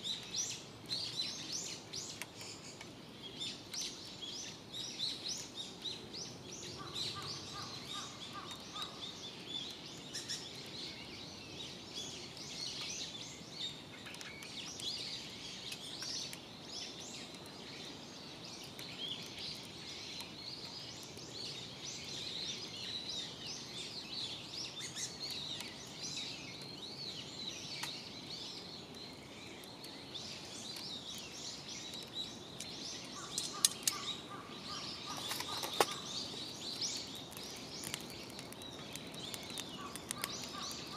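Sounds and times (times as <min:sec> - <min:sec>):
small birds chirping: 0:00.0 - 0:40.9
sharp clicks: 0:32.0 - 0:34.2, 0:35.1 - 0:40.9.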